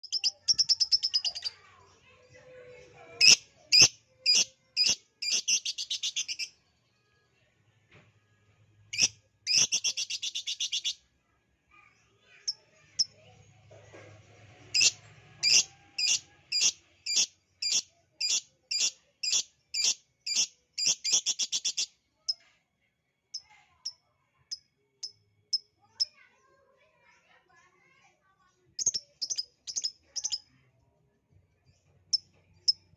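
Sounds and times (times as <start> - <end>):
bird chirping and trilling: 0.0 - 1.6, 3.2 - 6.6, 8.9 - 11.0, 14.7 - 21.9, 28.8 - 30.4.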